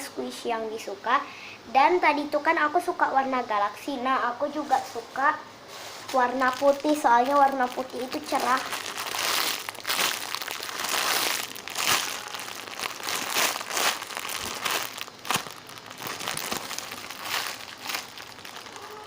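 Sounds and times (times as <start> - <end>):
plastic packaging crinkling: 6.0 - 19.0.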